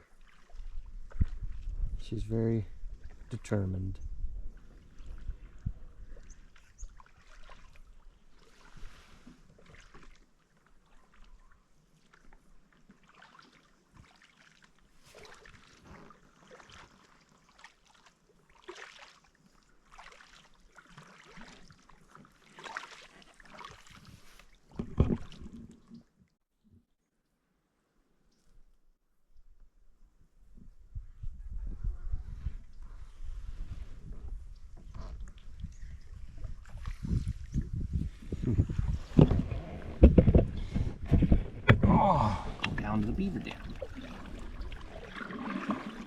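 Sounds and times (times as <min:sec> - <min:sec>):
paddle strokes splashing: 0:00.0 - 0:01.6, 0:06.3 - 0:26.0, 0:42.4 - 0:46.0.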